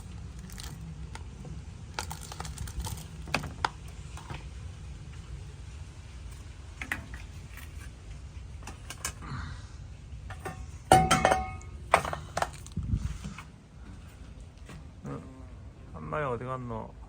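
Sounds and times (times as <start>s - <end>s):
low steady hum: 0.0s - 17.0s
loud ringing clatter: 10.3s - 12.6s
hard objects knocking and clinking: 10.3s - 12.8s.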